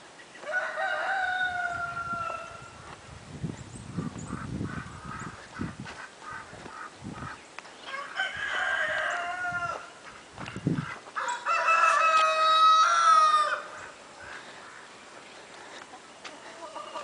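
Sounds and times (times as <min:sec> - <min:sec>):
rooster crowing: 0:00.4 - 0:02.8, 0:07.9 - 0:10.0, 0:11.2 - 0:13.8.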